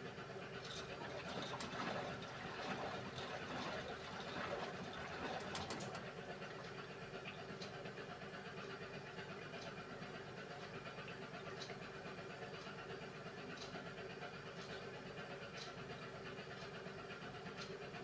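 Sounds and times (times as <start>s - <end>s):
washing machine motor hum: 1.0s - 6.7s.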